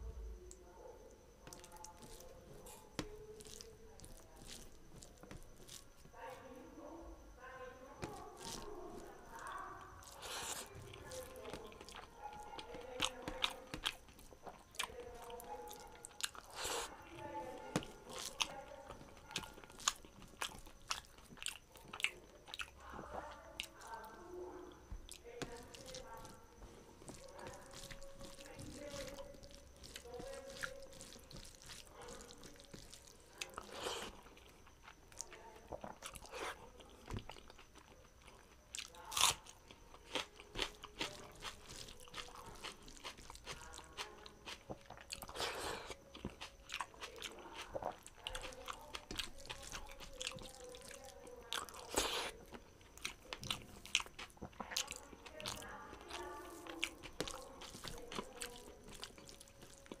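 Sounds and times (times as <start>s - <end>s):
wet chewing and mouth clicks: 1.3s - 6.3s, 8.0s - 60.0s
crunching bites: 1.4s - 5.9s, 25.0s - 34.5s, 35.2s - 55.2s.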